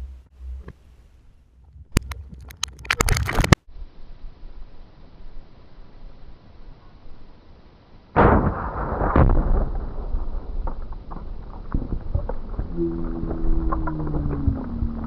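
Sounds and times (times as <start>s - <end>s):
debris landing knocks: 8.2s - 15.0s
explosion boom: 8.2s - 15.0s
sharp crack: 8.2s - 15.0s
low droning tone: 9.5s - 15.0s.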